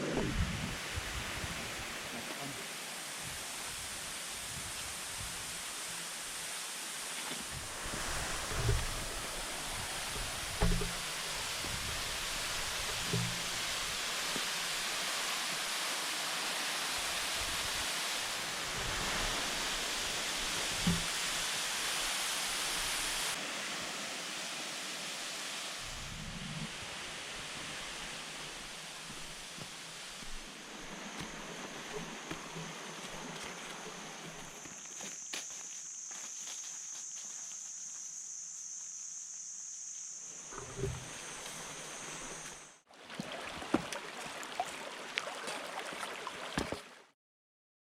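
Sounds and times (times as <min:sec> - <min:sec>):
waterfall rushing: 0:01.8 - 0:26.1
low thump: 0:07.6 - 0:14.0, 0:20.8 - 0:21.2
brief low bump: 0:07.9 - 0:13.9, 0:20.8 - 0:21.2.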